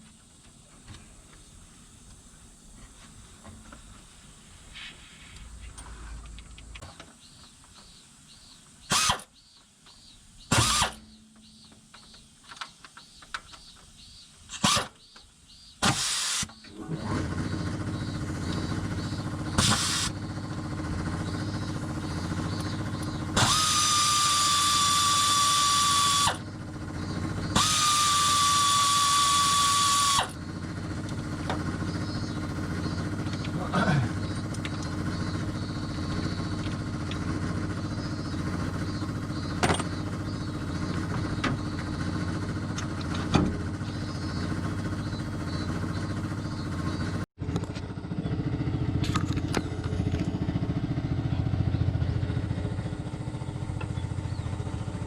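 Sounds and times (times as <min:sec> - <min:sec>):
high falling whine with hiss: 0:00.0 - 0:08.7
engine running: 0:00.0 - 0:55.0
sharp clicks and knocks: 0:09.1 - 0:16.0, 0:39.5 - 0:40.2.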